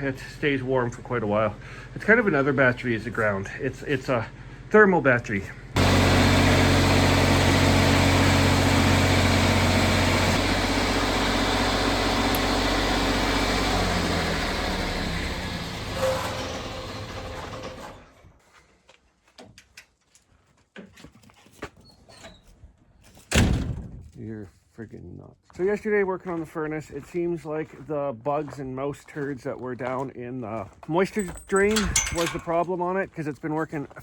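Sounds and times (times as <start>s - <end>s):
engine running: 5.6s - 18.2s.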